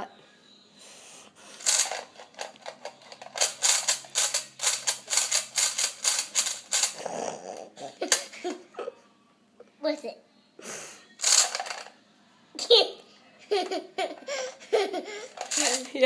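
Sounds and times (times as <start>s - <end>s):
plastic fidget toy clicking: 1.6s - 7.0s.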